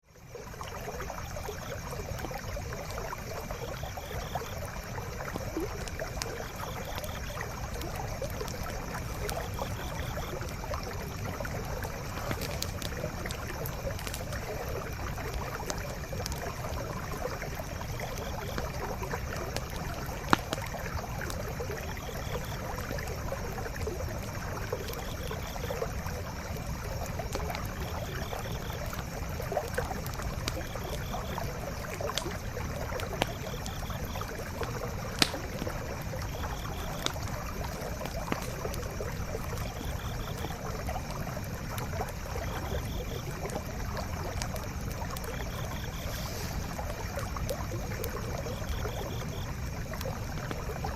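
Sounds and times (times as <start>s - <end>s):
campfire crackling and popping: 0.2s - 50.9s
stream flowing: 0.2s - 50.9s.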